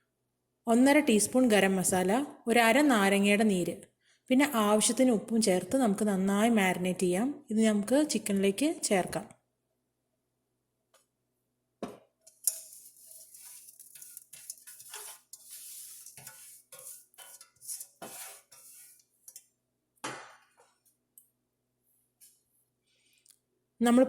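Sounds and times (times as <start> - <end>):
teaspoons clinking against a bowl: 12.3 - 18.4.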